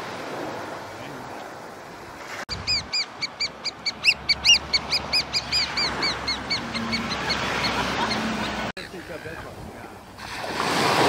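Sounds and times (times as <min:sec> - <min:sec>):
bird piping rapidly: 0:02.5 - 0:08.7.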